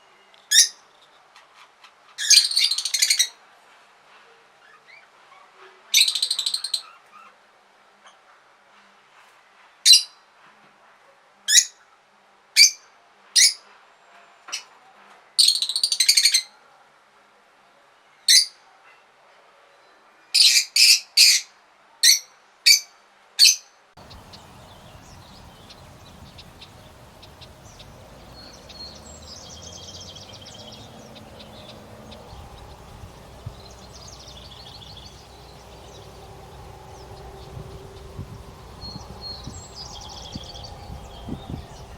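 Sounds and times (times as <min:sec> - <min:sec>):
bird short sharp calls: 0:24.0 - 0:41.9
faint high bird calls: 0:24.0 - 0:41.9
steady background hiss: 0:24.0 - 0:41.9.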